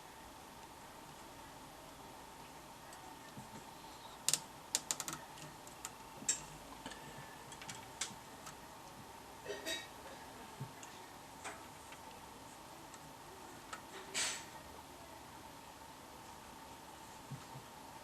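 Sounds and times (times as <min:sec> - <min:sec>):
faint steady tone: 0:00.0 - 0:04.4.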